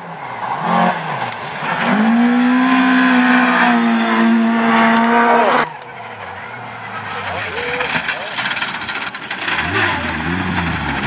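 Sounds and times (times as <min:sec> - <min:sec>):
rally car engine at high revs: 0:00.0 - 0:11.0
gravel and tyre hiss: 0:05.5 - 0:11.0.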